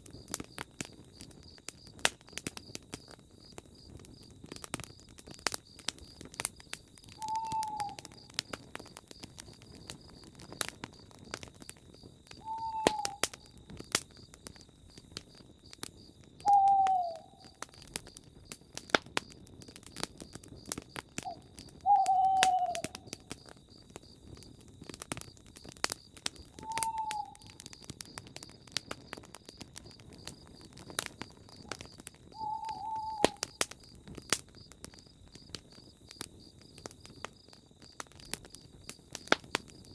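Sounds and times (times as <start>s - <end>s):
campfire crackling and popping: 0.0s - 39.9s
insects chirring: 0.0s - 39.9s
owl hooting: 7.2s - 8.0s, 12.4s - 13.3s, 16.5s - 17.6s, 21.2s - 23.1s, 26.6s - 27.6s, 32.3s - 33.6s.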